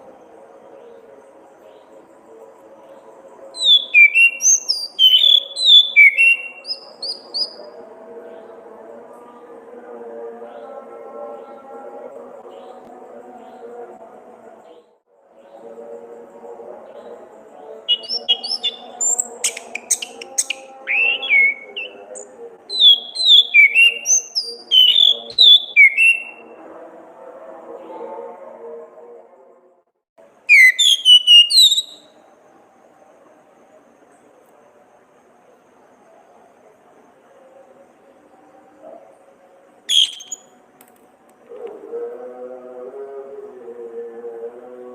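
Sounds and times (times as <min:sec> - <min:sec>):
thrush singing whistled notes: 0:03.6 - 0:07.8, 0:17.8 - 0:26.5, 0:30.5 - 0:32.2, 0:39.9 - 0:40.5.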